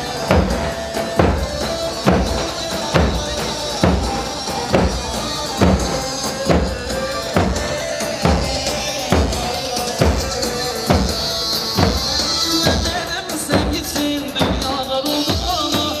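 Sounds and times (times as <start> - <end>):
heavy drum beat: 0.0 - 16.0.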